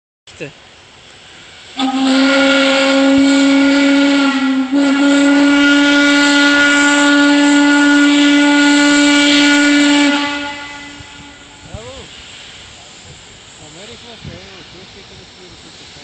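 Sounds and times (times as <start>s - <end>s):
steam hissing: 0.4s - 16.0s
steam whistle blowing low note: 1.7s - 11.7s.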